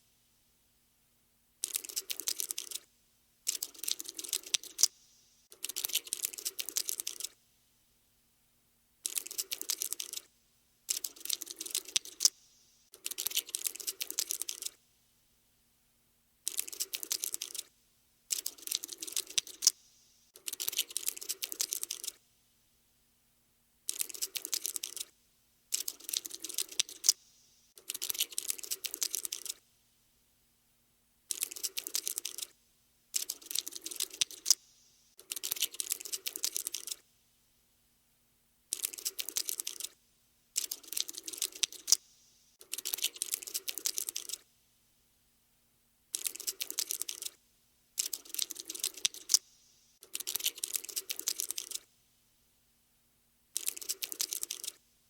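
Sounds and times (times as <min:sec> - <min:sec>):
cockroach scuttling clicks: 0:01.6 - 0:02.8, 0:03.5 - 0:07.4, 0:09.0 - 0:10.3, 0:10.9 - 0:14.8, 0:16.5 - 0:17.7, 0:18.3 - 0:22.2, 0:23.9 - 0:25.1, 0:25.7 - 0:27.2, 0:27.8 - 0:29.6, 0:31.3 - 0:32.5, 0:33.2 - 0:37.0, 0:38.7 - 0:40.0, 0:40.6 - 0:42.0, 0:42.6 - 0:44.4, 0:46.1 - 0:47.4, 0:48.0 - 0:51.8, 0:53.6 - 0:54.8.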